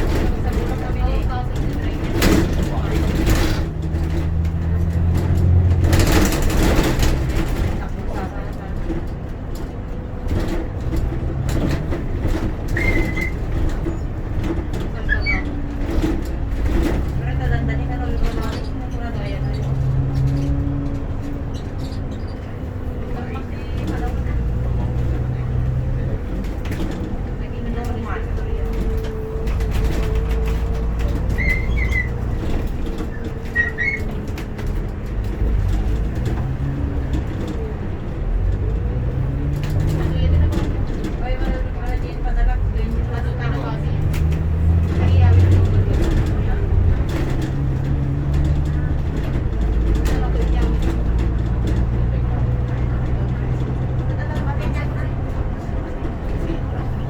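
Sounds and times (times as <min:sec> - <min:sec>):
rattles: 0:00.0 - 0:09.7, 0:10.3 - 0:57.0
bus engine rumbling: 0:00.0 - 0:57.0
short high squeak: 0:33.5 - 0:34.1.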